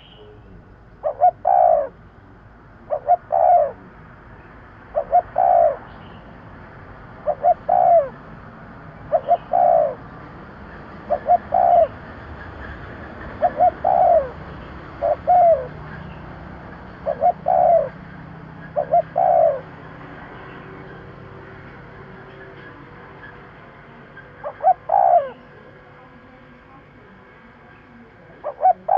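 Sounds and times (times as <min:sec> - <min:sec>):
dove cooing: 0:00.0 - 0:02.0, 0:02.8 - 0:04.0, 0:04.9 - 0:06.0, 0:07.2 - 0:08.4, 0:09.0 - 0:23.5, 0:24.2 - 0:26.0, 0:28.2 - 0:28.9.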